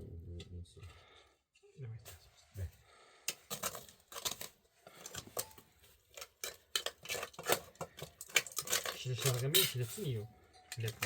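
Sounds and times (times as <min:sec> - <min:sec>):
small hard objects clinking: 0:03.3 - 0:11.0.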